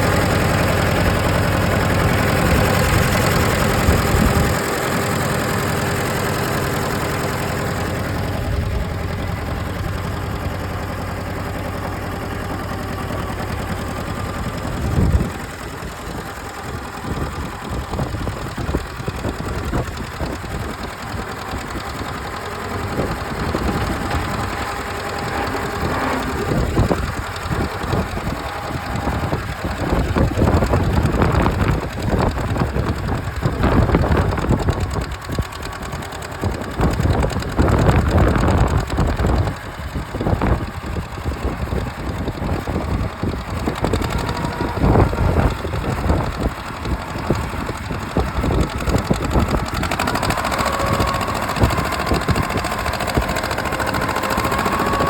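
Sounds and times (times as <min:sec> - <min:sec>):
tractor engine running: 0:00.0 - 0:55.0
steady whine: 0:20.6 - 0:31.6.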